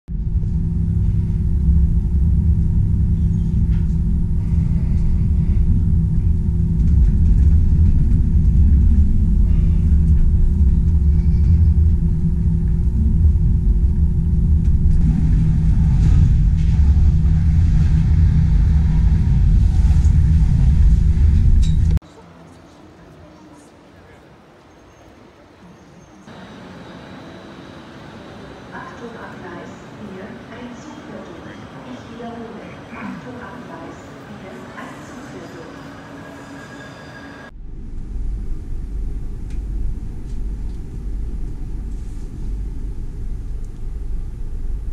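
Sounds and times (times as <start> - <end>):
low hum: 0.1 - 22.0, 37.5 - 44.9
train rumbling: 0.1 - 44.9.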